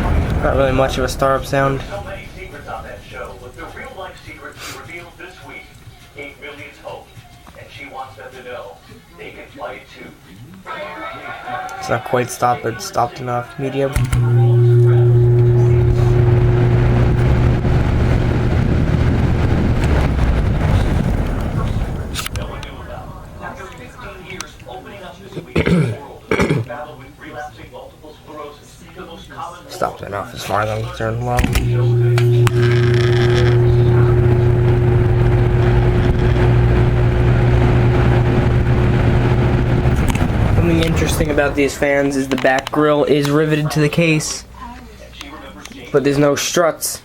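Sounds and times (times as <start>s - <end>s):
rush of air from fan: 0.0s - 5.4s, 15.2s - 25.0s, 32.2s - 42.3s
fan motor hum: 0.0s - 6.6s, 14.0s - 25.4s, 30.4s - 43.4s.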